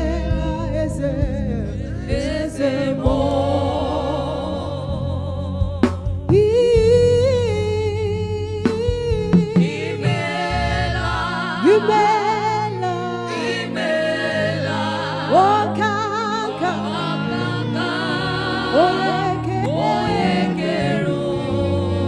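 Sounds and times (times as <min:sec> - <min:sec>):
keyboard and bass: 0:00.0 - 0:22.0
sharp drum hits: 0:08.7 - 0:10.3.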